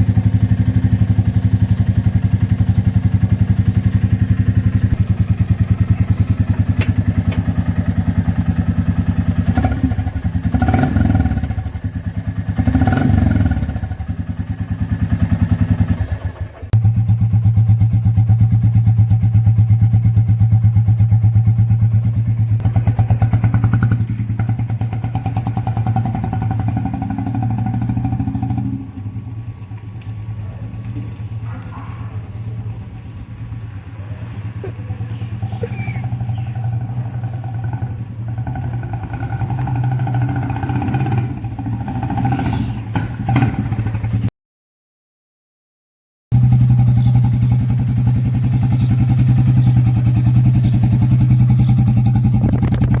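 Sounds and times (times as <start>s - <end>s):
engine revving: 0.0s - 17.2s, 22.6s - 29.3s, 33.8s - 44.3s, 46.3s - 53.0s
motorcycle engine idling: 0.0s - 44.3s, 46.4s - 53.0s.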